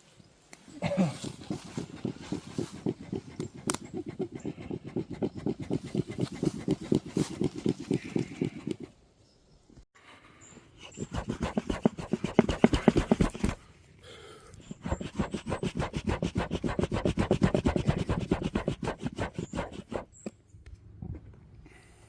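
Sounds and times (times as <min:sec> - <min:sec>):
rhythmic scraping strokes: 0:01.3 - 0:08.8.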